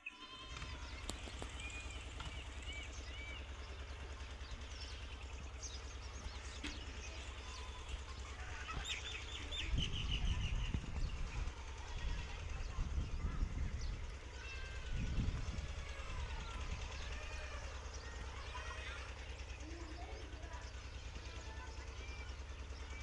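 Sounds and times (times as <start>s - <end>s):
birds chirping: 0.0s - 23.0s
steady low rumble: 0.7s - 18.8s.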